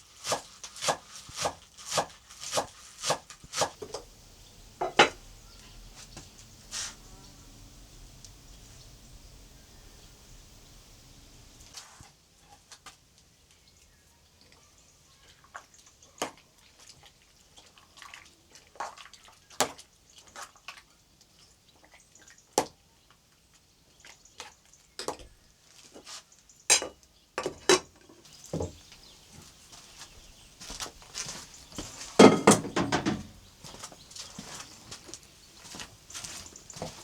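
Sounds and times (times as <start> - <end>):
objects clattering: 4.8 - 5.2, 30.9 - 33.5
objects clinking and knocking: 32.2 - 33.3.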